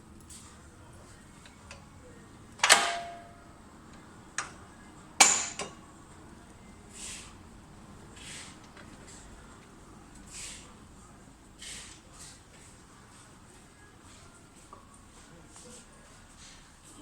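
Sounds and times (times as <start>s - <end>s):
log splitter metallic clanks: 2.6s - 3.4s, 5.2s - 5.8s.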